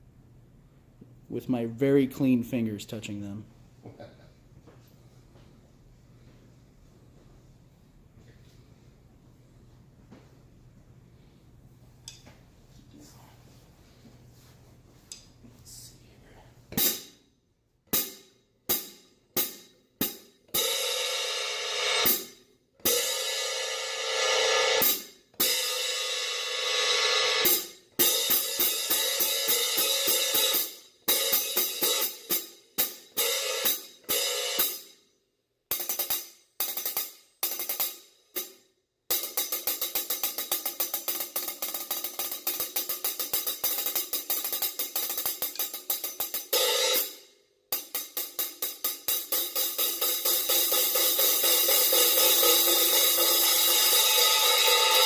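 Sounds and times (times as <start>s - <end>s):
hi-hat cymbals played: 16.8s - 17.3s, 18.0s - 35.0s, 35.7s - 55.0s.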